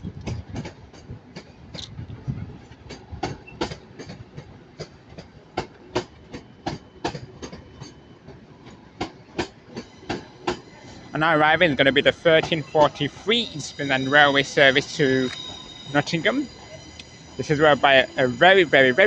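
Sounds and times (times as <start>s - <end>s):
train wheels clicking over rail joints: 0.1s - 19.0s.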